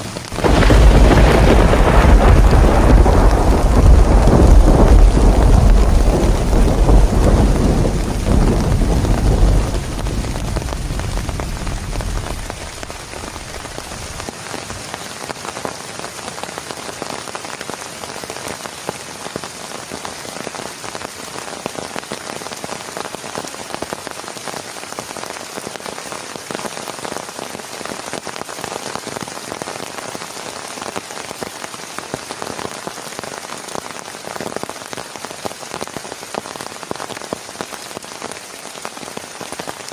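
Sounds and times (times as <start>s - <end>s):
heavy rain with pattering drops: 0.0s - 39.9s
thunder rumbling: 0.1s - 14.3s.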